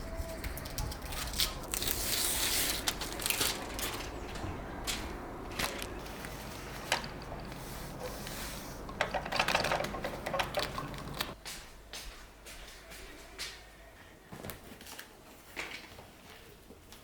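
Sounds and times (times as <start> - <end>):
objects clicking and rustling: 0.0 - 11.4.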